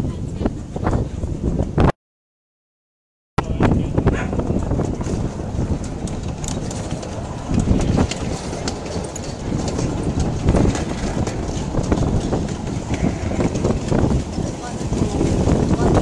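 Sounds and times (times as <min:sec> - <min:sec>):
miniature train rumbling: 0:03.9 - 0:16.0
wheels clicking on rails: 0:04.0 - 0:16.0.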